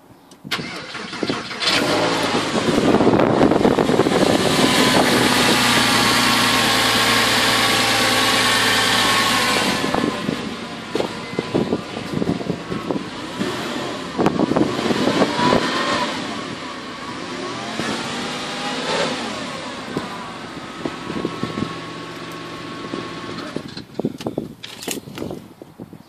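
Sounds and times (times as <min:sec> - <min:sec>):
engine revving: 0:00.5 - 0:23.7.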